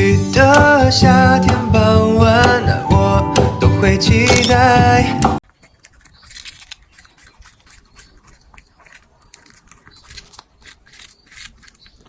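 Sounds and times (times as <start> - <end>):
quiet scratching and clicking: 5.5 - 12.0.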